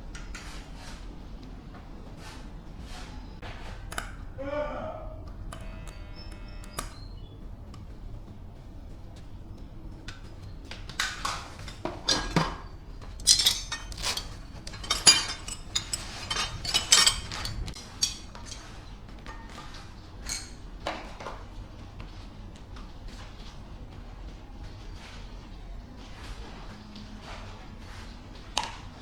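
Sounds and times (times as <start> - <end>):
metal objects clinking and clanking: 11.0 - 20.6.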